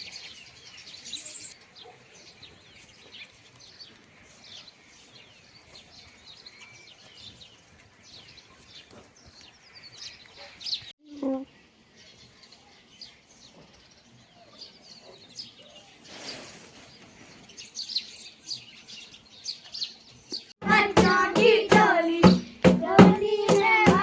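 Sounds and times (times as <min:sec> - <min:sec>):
rhythmic hand clapping: 0:20.6 - 0:24.0
voices singing together: 0:20.6 - 0:24.0.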